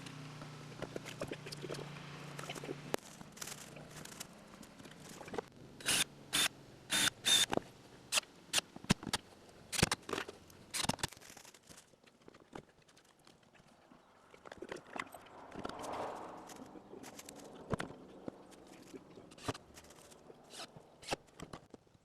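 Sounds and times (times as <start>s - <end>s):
short irregular scrapes and rustles: 14.6s - 20.8s.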